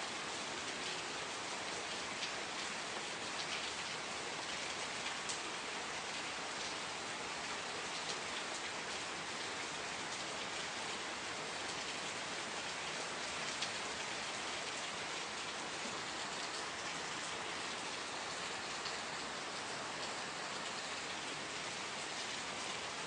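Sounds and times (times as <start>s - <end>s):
steady rain falling: 0.0s - 23.0s.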